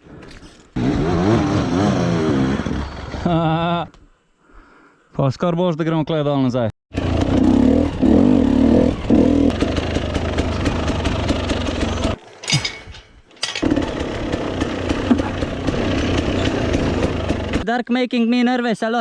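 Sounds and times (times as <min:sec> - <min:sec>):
dirt bike engine running: 0:06.9 - 0:12.2, 0:13.6 - 0:17.6.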